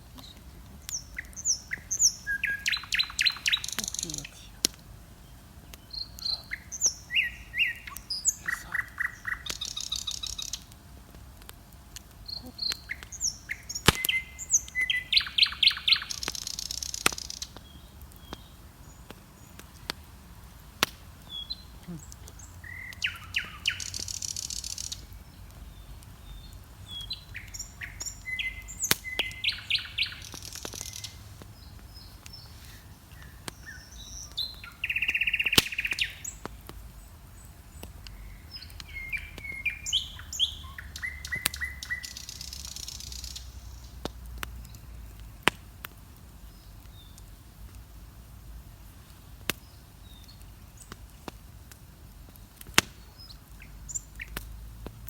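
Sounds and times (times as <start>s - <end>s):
birds singing: 0.0s - 10.8s, 11.8s - 45.5s, 52.3s - 54.5s
bonfire crackling and popping: 0.0s - 55.0s.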